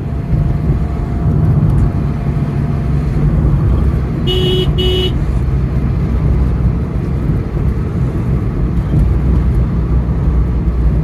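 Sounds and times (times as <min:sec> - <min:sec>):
vehicle driving rumble: 0:00.0 - 0:11.0
car horn beeps: 0:04.2 - 0:05.2.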